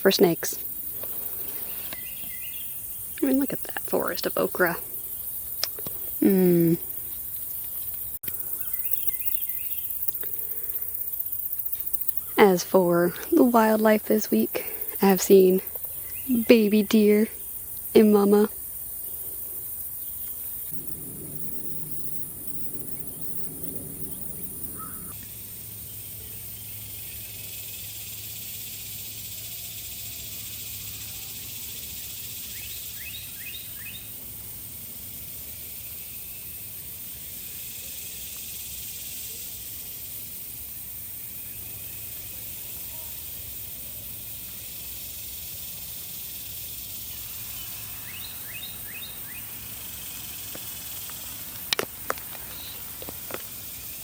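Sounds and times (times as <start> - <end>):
high insect hiss: 0.0 - 54.0
bird chirps: 1.3 - 4.8, 8.3 - 10.7, 20.7 - 25.1.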